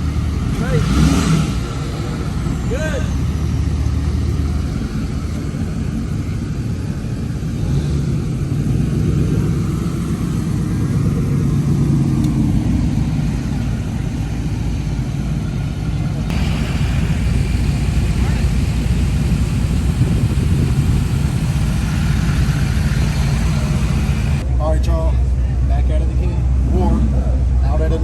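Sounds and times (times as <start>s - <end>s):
vehicle engine rumbling: 0.0s - 28.0s.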